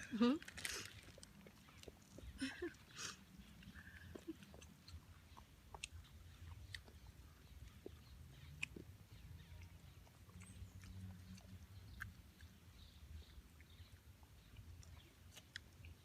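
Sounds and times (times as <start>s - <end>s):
faint chewing: 0.0s - 16.0s.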